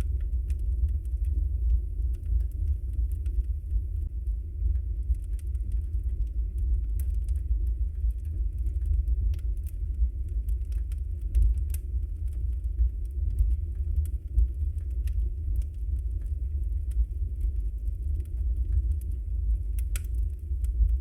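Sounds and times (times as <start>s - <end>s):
burning logs crackling and popping: 0.0s - 21.0s
fire flames rumbling: 0.0s - 21.0s.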